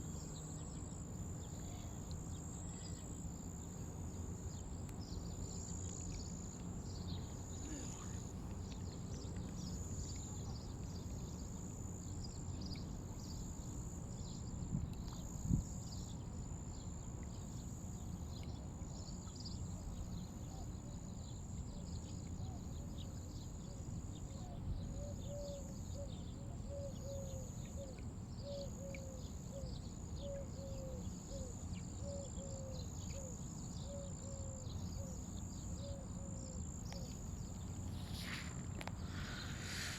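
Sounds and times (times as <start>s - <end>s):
steady high buzz: 37.2s - 39.9s.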